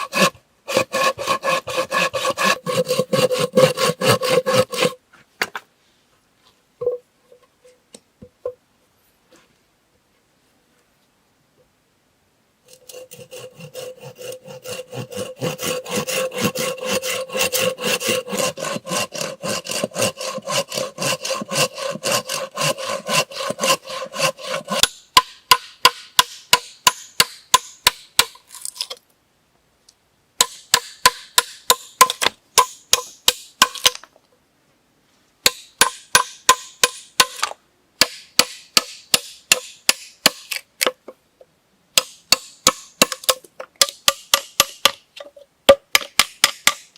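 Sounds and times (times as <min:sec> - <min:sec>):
hand saw cutting wood: 0:00.0 - 0:05.0, 0:12.7 - 0:28.8.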